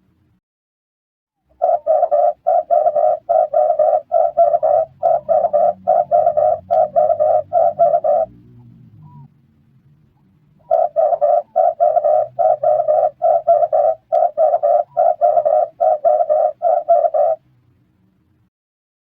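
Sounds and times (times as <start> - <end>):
dove cooing: 1.5 - 9.3, 10.6 - 17.4.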